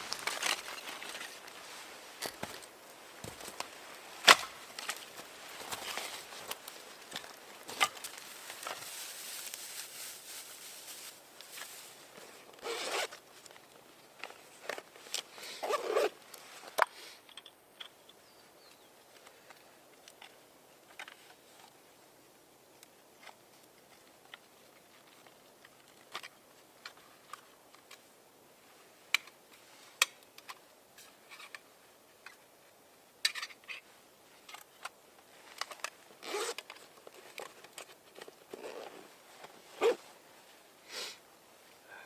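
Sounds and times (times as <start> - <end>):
zipper rasping: 12.6 - 13.1, 15.6 - 16.1, 36.2 - 36.6, 38.5 - 39.1, 39.8 - 40.0.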